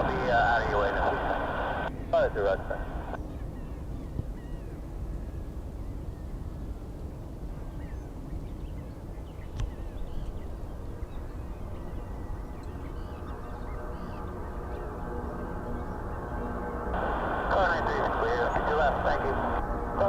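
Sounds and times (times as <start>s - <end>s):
steady low rumble: 0.0s - 3.2s, 9.2s - 20.0s
bird calls: 0.0s - 19.6s
aircraft engine hum: 0.0s - 20.0s.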